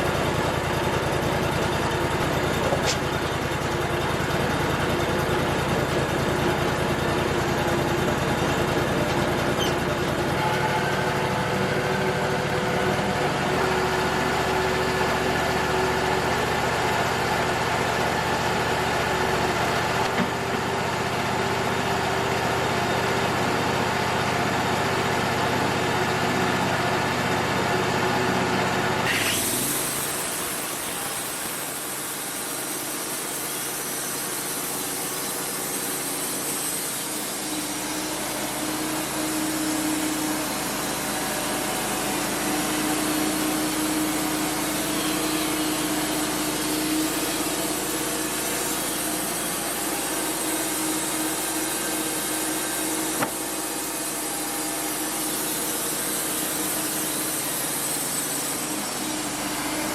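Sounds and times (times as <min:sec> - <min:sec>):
sawmill engine humming: 0:00.0 - 0:59.9
saw blade cutting wood: 0:01.6 - 0:04.9, 0:05.9 - 0:11.2, 0:29.0 - 0:59.9.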